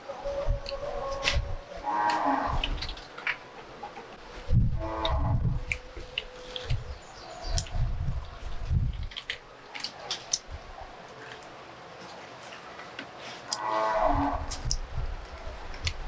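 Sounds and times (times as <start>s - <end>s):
cow mooing: 1.8s - 2.8s, 13.6s - 14.5s.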